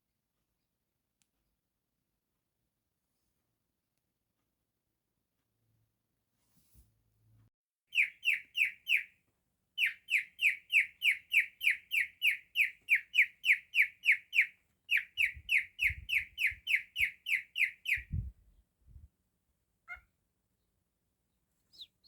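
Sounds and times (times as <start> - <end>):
cockatiel chirping: 7.9 - 9.1, 9.8 - 18.3, 21.7 - 22.0.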